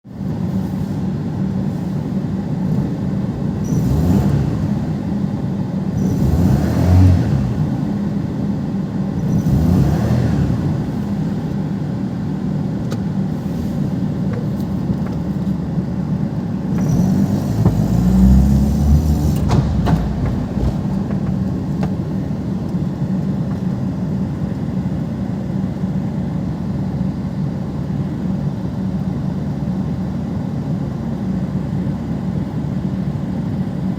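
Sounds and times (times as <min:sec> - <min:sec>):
car engine revving: 0:02.6 - 0:08.4, 0:09.0 - 0:15.7, 0:16.7 - 0:23.2.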